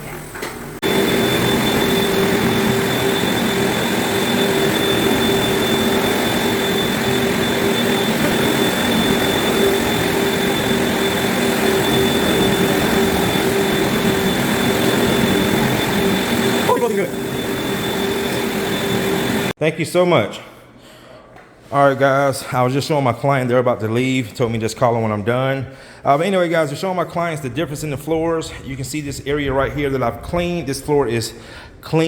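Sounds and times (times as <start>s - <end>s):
floor-cleaning machine droning: 0.0s - 19.6s.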